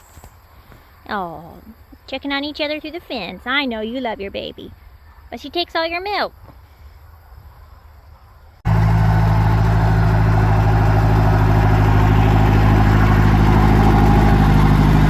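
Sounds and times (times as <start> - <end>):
engine running steadily: 8.7 - 15.0.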